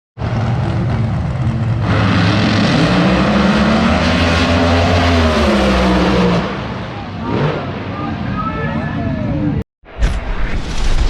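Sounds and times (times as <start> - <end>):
car engine revving: 0.2 - 8.4.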